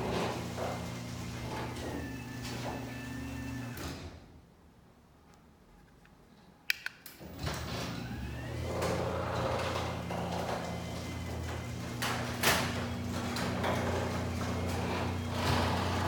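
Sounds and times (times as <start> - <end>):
garage door opener motor whine: 0.0 - 4.2, 7.2 - 16.0
sharp clicks: 6.7 - 7.2.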